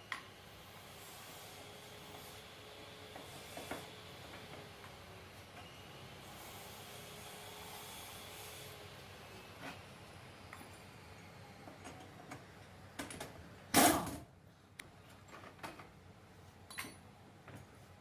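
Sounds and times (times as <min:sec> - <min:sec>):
tools clicking and tapping: 0:16.7 - 0:17.6.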